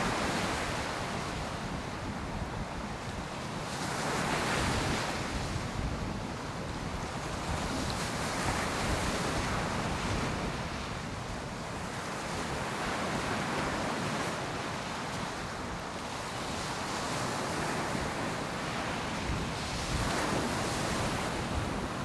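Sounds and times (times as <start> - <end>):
waves breaking on beach: 0.0 - 22.0.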